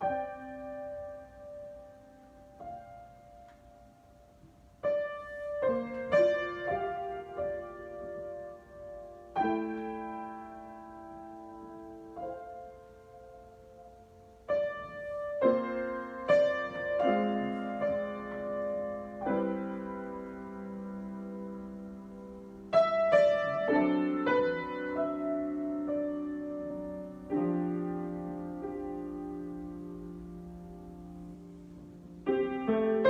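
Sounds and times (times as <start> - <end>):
slow piano chords: 0.0 - 33.0.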